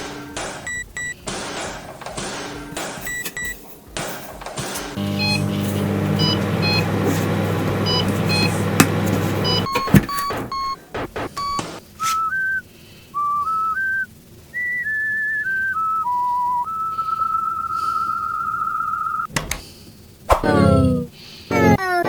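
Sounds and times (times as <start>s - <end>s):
low electric hum: 5.0s - 11.3s
clunk: 5.7s - 10.6s
short high beeps: 9.4s - 11.7s
electronic whistle-like tune: 9.4s - 19.3s.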